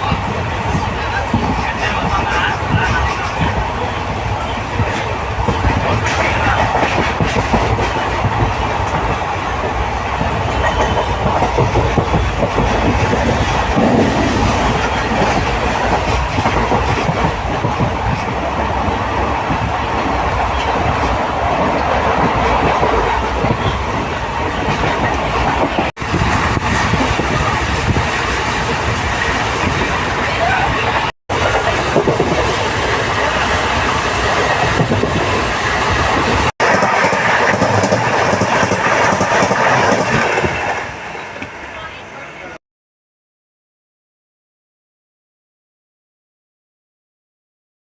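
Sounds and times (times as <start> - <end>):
train wheels on rails: 0.0 - 42.6.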